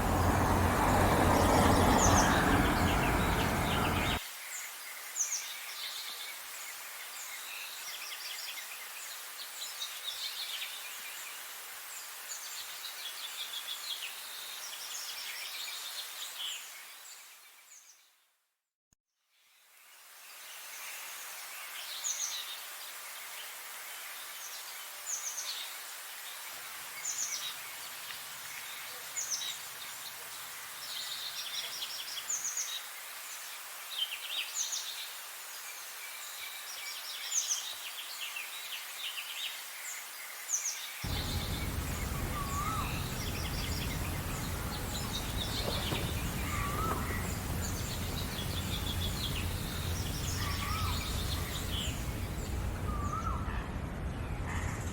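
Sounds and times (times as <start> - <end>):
lower swooping bird calls: 0.0 - 4.2, 41.1 - 53.8
songbirds singing: 0.0 - 4.2, 40.7 - 54.9
steady hiss: 0.0 - 4.2, 41.1 - 53.2
low rumble: 41.1 - 54.9.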